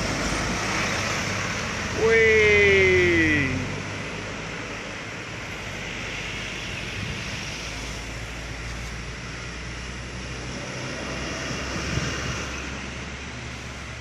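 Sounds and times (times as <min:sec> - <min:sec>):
wind noise on microphone: 0:06.6 - 0:07.8, 0:11.5 - 0:12.5.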